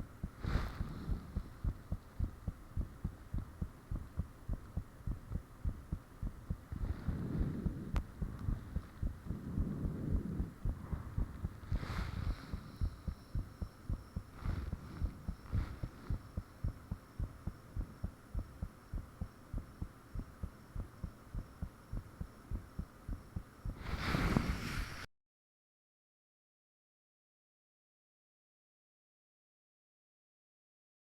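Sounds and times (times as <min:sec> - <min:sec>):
heartbeat thumps: 0:00.0 - 0:23.9.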